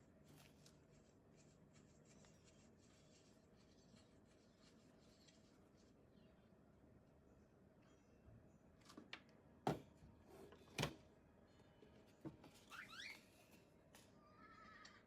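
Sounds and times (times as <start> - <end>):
short squeaky scrape: 12.6 - 13.6.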